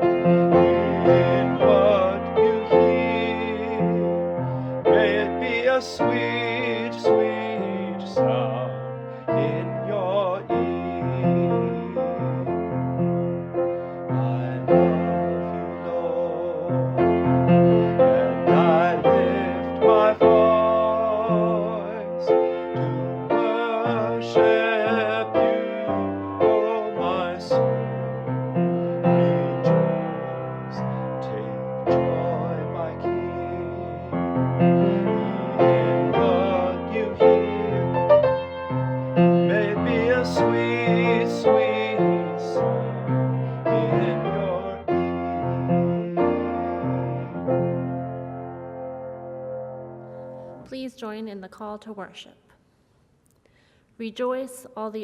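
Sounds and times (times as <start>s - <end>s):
held melody line with vibrato: 0.0s - 49.1s
slow piano music: 0.0s - 50.7s.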